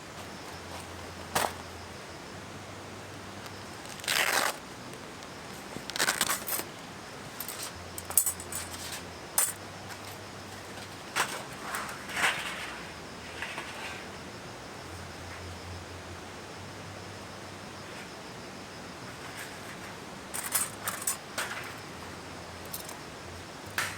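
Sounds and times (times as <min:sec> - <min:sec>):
rustle: 0:00.0 - 0:23.9
small hard objects clinking: 0:07.4 - 0:10.2, 0:20.3 - 0:21.8, 0:22.6 - 0:23.0.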